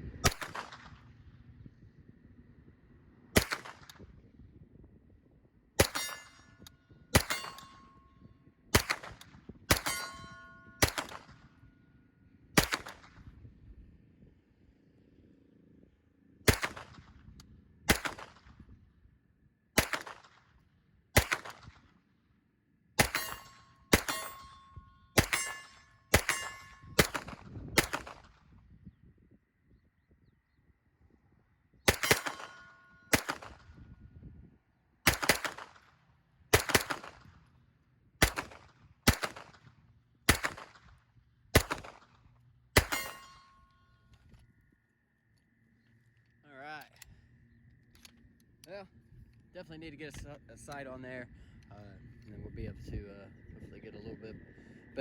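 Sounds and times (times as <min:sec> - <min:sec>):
gunshots: 0:00.2 - 0:01.0, 0:03.4 - 0:04.0, 0:05.8 - 0:06.5, 0:07.1 - 0:07.8, 0:08.8 - 0:11.5, 0:12.6 - 0:13.3, 0:16.5 - 0:17.2, 0:17.9 - 0:18.6, 0:19.8 - 0:20.5, 0:21.2 - 0:21.9, 0:23.0 - 0:24.6, 0:25.2 - 0:28.4, 0:31.9 - 0:33.8, 0:35.1 - 0:35.9, 0:36.5 - 0:37.4, 0:38.2 - 0:39.7, 0:40.3 - 0:42.2, 0:42.8 - 0:43.4
metallic ring: 0:05.9 - 0:08.3, 0:09.8 - 0:10.9, 0:23.0 - 0:27.0, 0:32.0 - 0:33.1, 0:42.8 - 0:44.1.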